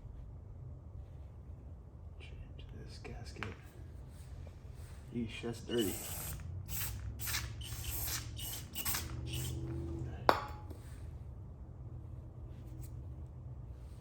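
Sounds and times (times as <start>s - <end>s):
aerosol spray hissing bursts: 5.7s - 9.6s.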